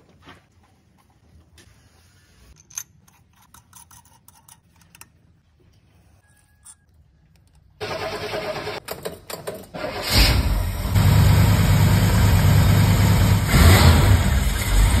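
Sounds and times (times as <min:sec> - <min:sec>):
engine starter cranking: 0:07.8 - 0:10.9.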